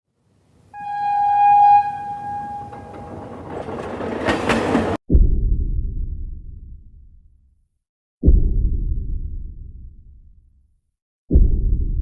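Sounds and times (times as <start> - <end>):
rushing noise of train: 0.6 - 5.0
train horn blast: 0.7 - 3.5
deep rumbling boom: 5.1 - 7.0.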